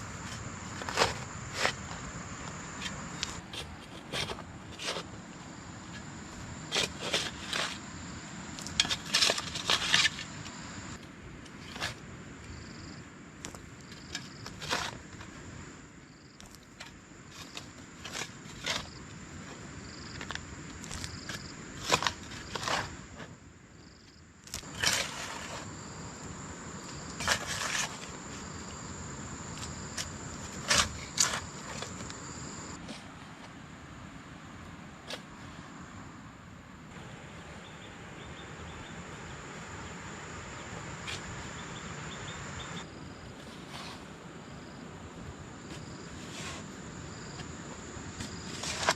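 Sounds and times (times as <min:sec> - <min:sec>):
crunching and scraping strokes: 0:00.1 - 0:02.1, 0:02.8 - 0:05.2, 0:06.7 - 0:07.8, 0:08.6 - 0:12.0, 0:16.4 - 0:23.4, 0:24.5 - 0:25.7, 0:26.8 - 0:28.7, 0:29.5 - 0:33.1, 0:43.3 - 0:44.2, 0:45.7 - 0:47.4, 0:48.2 - 0:48.9.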